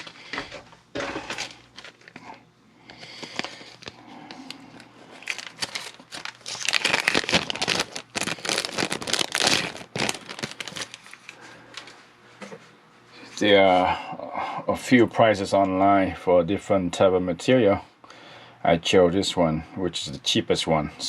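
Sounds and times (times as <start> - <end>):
plastic packaging crinkling: 3.0 - 11.9.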